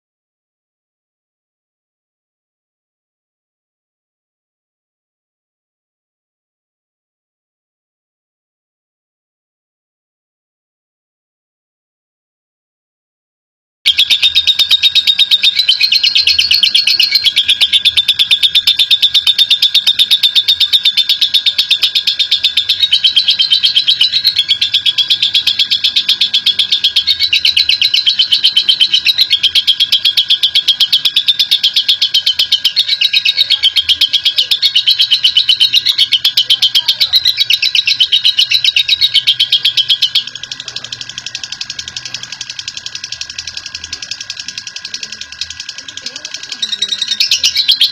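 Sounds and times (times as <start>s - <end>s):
bird chattering trill: 13.9s - 47.9s.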